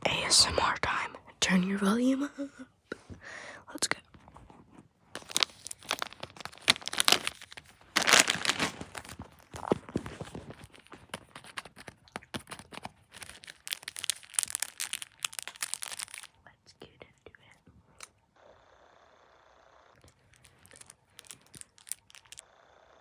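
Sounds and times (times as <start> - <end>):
material crinkling and crackling: 5.1 - 16.4, 20.0 - 22.4.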